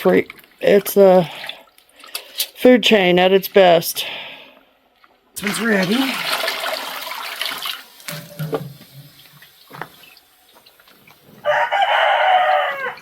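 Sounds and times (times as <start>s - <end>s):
water splashing: 0.0s - 2.6s, 5.4s - 13.0s
rooster crowing: 11.4s - 13.0s.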